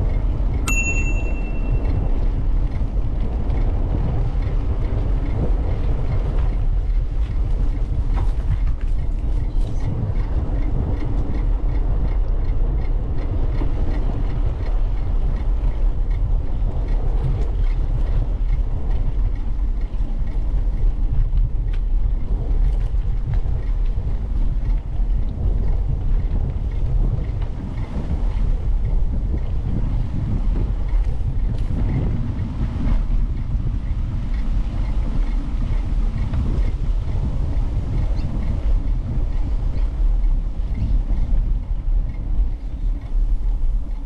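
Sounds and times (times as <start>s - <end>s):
light regular ticking: 0.0s - 29.5s
wind buffeting microphone: 0.0s - 44.0s.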